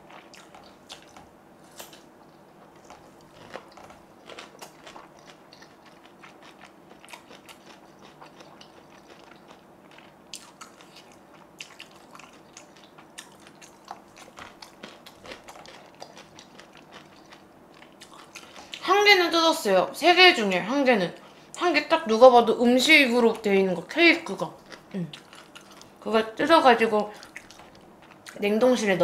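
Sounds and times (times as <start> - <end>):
person chewing with crunches: 0.0 - 18.9, 24.3 - 26.1, 27.0 - 28.5
faint hum: 0.0 - 29.0.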